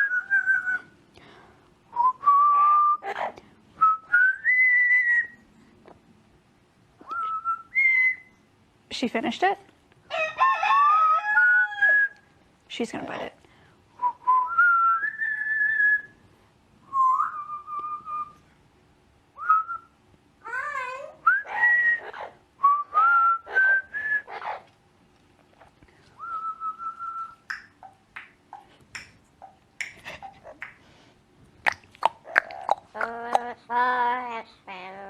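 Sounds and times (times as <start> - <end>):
parrot whistling a tune: 3.9 - 5.4, 7.0 - 8.4, 16.9 - 18.4, 21.2 - 24.6
harsh buzzy parrot calls: 23.4 - 24.8, 31.6 - 35.0.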